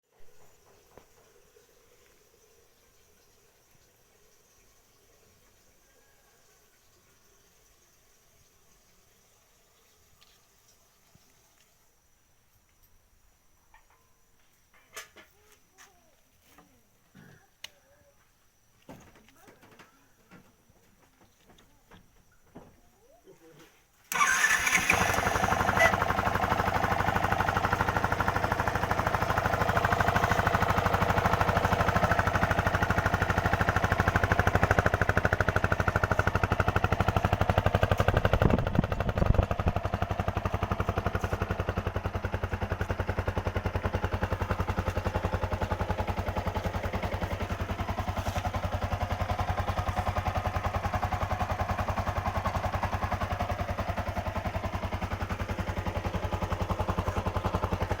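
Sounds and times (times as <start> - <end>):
motorcycle engine running: 24.1 - 58.0.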